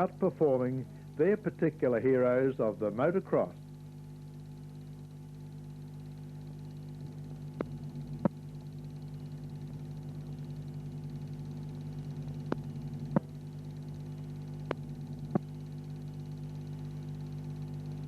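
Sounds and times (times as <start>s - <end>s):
film soundtrack hum and hiss: 0.0s - 18.0s
sharp clicks: 12.5s - 13.4s.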